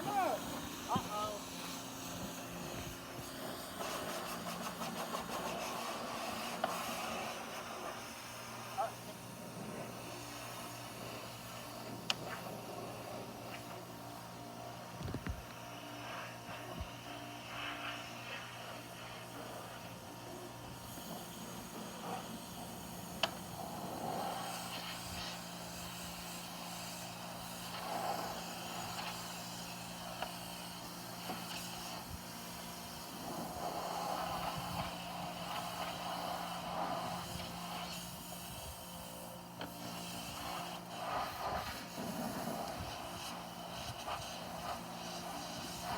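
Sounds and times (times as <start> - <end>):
pressure washer hum: 0.0 - 14.0.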